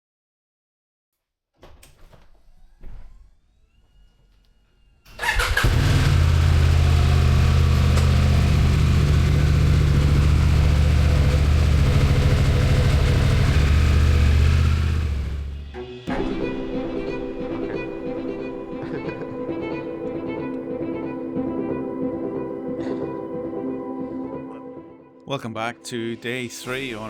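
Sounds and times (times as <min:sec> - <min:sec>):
motorcycle engine starting and idling: 0:05.1 - 0:15.7.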